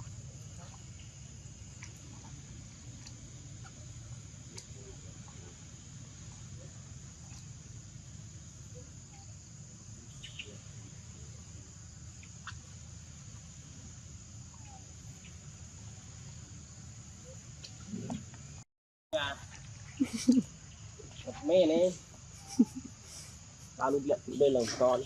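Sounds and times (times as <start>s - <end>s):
high-pitched insect drone: 20.0s - 25.0s.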